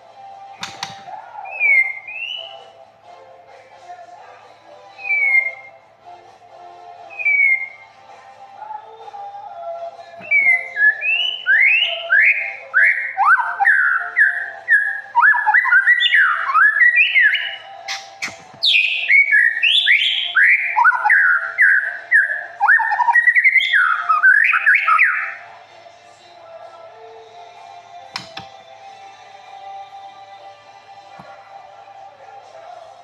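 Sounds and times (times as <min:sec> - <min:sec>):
sharp click: 0:00.6 - 0:01.1
songbird singing whistled phrases: 0:00.6 - 0:02.8, 0:04.9 - 0:05.8, 0:07.0 - 0:08.0, 0:10.2 - 0:25.4.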